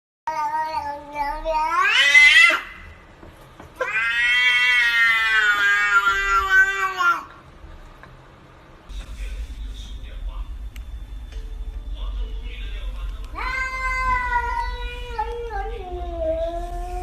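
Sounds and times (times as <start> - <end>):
cat meowing: 0.3 - 2.8, 3.8 - 7.3, 13.3 - 17.0.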